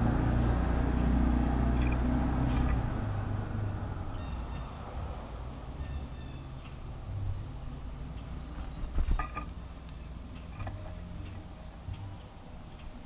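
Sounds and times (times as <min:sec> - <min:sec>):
low outdoor rumble: 0:00.0 - 0:13.0
bird chirps: 0:04.1 - 0:04.9, 0:05.8 - 0:06.8, 0:07.9 - 0:08.4.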